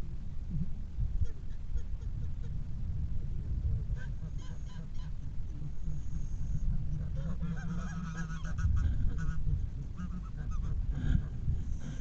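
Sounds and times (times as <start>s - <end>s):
low rumble: 0.0s - 12.0s
geese honking: 4.0s - 12.0s.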